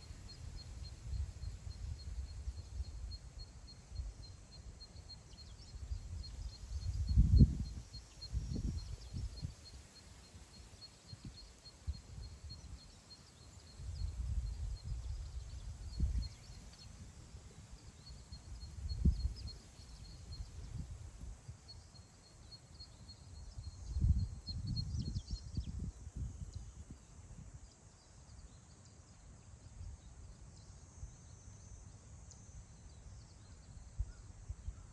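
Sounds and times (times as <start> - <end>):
wind gusting against microphone: 5.6 - 9.8, 13.8 - 21.6, 23.0 - 27.6.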